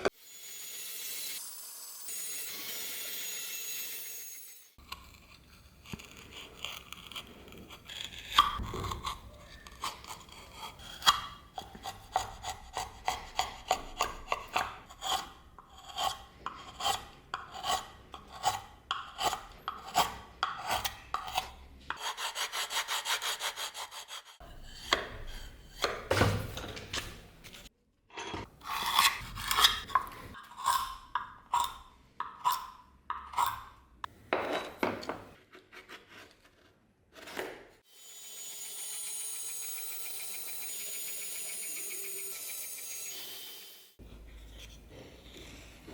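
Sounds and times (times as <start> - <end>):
hand file scraping: 4.8 - 26.1, 28.5 - 33.7.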